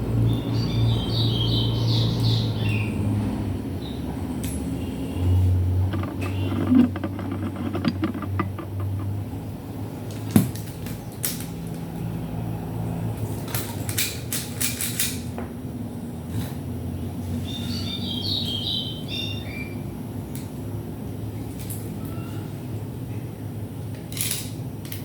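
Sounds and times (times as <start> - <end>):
plastic and metal parts clicking: 5.9 - 9.1.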